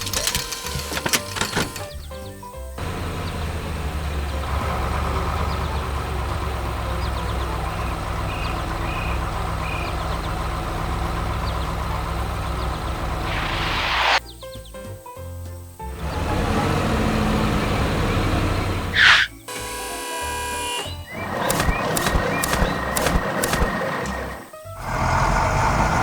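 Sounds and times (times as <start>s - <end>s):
heavy vehicle engine idling: 2.8s - 13.3s, 15.9s - 19.0s
loud hiss: 13.1s - 14.4s, 21.4s - 25.0s.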